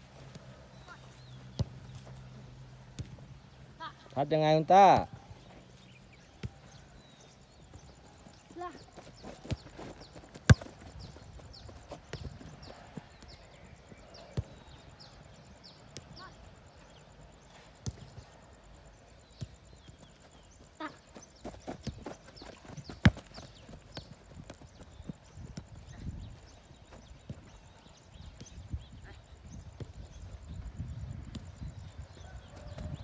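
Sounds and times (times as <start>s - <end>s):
football kick thuds: 7.7s - 13.3s, 20.8s - 27.5s.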